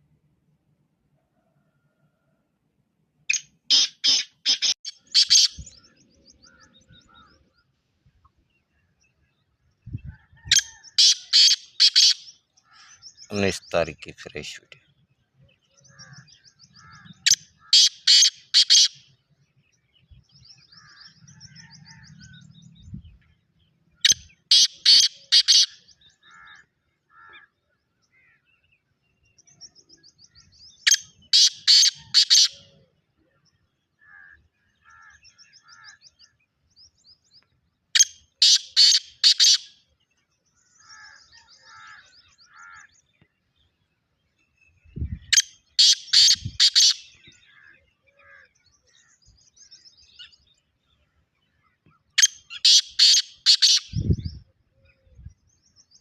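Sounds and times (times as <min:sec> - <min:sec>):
bird harsh calling: 0:03.3 - 0:07.6, 0:10.4 - 0:13.8, 0:15.8 - 0:19.2, 0:23.9 - 0:28.5, 0:30.4 - 0:32.8, 0:33.9 - 0:36.4, 0:38.0 - 0:39.8, 0:45.0 - 0:50.5, 0:51.7 - 0:55.0.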